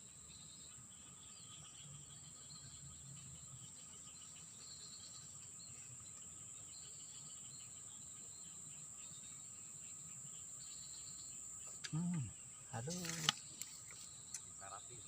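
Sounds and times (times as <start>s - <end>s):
high-pitched insect trill: 0.0s - 15.0s.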